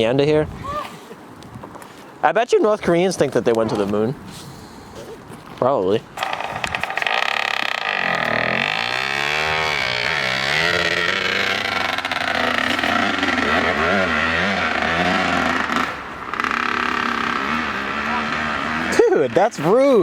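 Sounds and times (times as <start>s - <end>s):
dirt bike engine revving: 6.2s - 20.0s.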